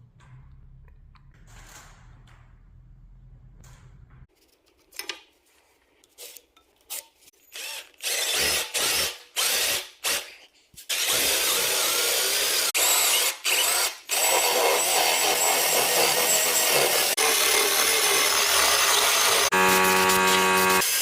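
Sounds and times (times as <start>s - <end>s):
power tool cutting wood: 10.9s - 21.0s.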